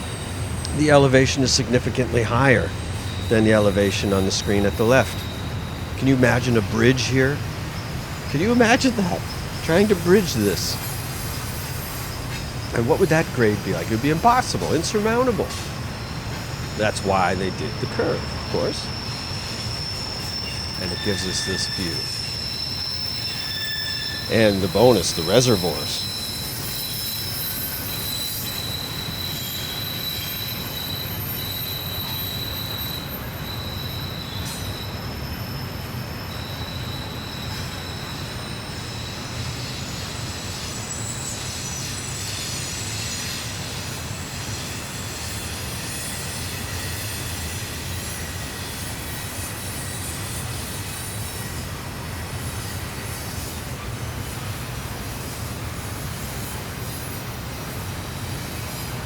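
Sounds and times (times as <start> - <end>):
freight train rumbling: 0.0 - 59.0
wheel flanges squealing: 0.0 - 59.0.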